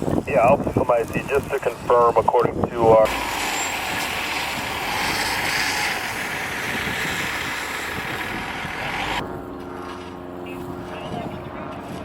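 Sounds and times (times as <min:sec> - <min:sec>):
radio static: 0:00.2 - 0:03.2, 0:10.4 - 0:12.0.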